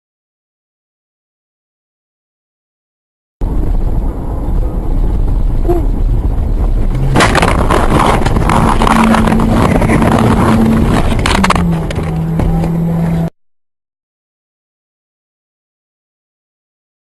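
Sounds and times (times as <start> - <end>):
loud rushing noise: 3.4 - 13.3
road and engine rumble: 3.4 - 13.4.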